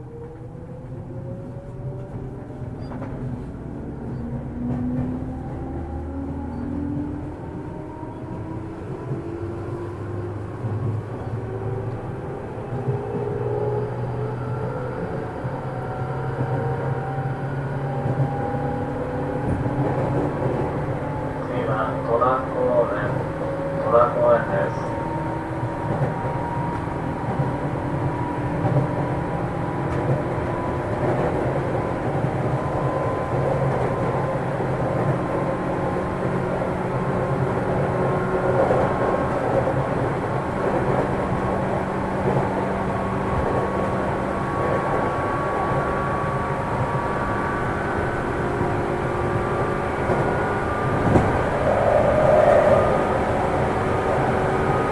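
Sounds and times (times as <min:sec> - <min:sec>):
wheels rumbling on rails: 0:00.0 - 0:54.9
low hum: 0:50.7 - 0:54.9.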